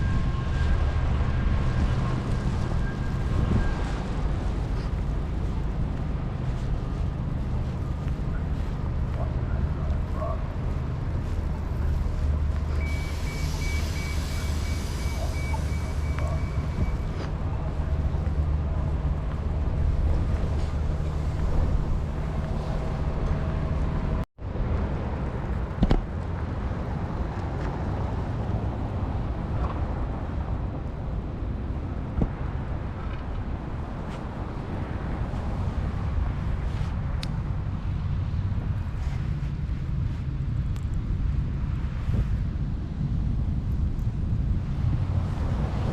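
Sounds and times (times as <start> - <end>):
passing traffic rumble: 0.0 - 45.9
high electronic beeps: 12.8 - 17.2.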